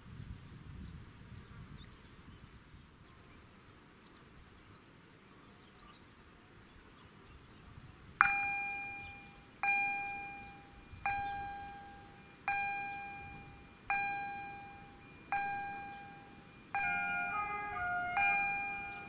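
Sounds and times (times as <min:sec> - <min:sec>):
level crossing warning bell: 0:08.2 - 0:19.0.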